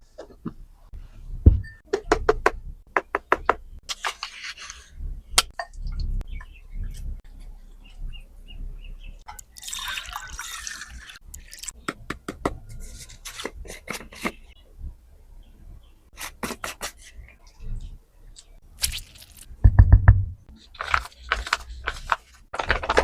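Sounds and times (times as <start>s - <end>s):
liquid pouring: 9.3s - 11.7s.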